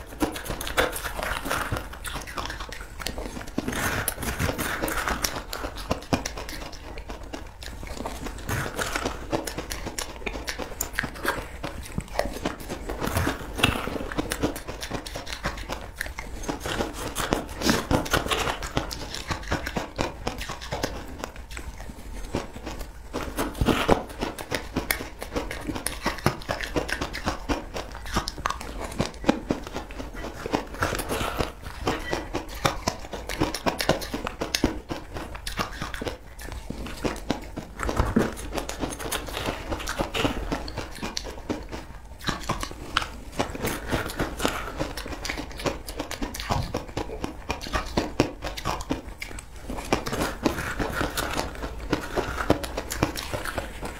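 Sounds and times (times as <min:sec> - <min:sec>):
crunching and chewing food: 0:00.0 - 0:53.9.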